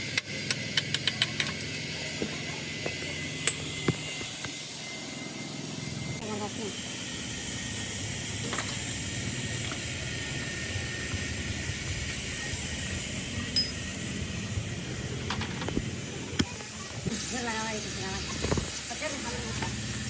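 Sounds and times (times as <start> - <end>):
metallic clicks and clinks of tools: 0.1 - 1.8, 13.6 - 13.8.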